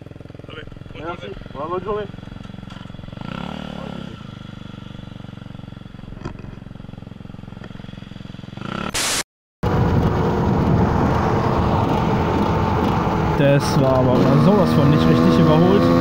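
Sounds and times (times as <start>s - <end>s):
motorcycle engine idling: 0.0s - 8.6s
motorcycle riding: 0.0s - 9.0s, 9.6s - 16.0s
brief hiss: 9.0s - 9.3s.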